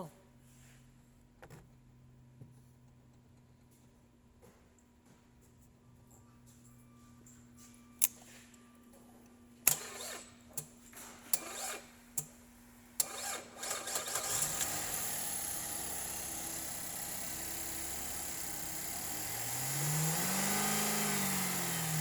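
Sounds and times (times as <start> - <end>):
car engine starting and idling: 13.0 - 22.0.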